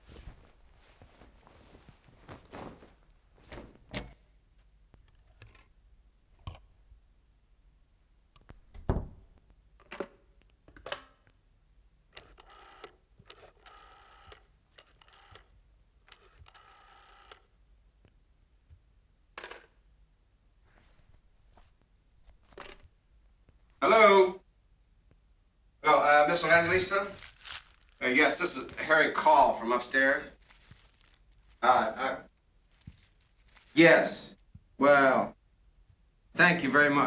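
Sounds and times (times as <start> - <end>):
telephone bell ringing: 16.5 - 17.4.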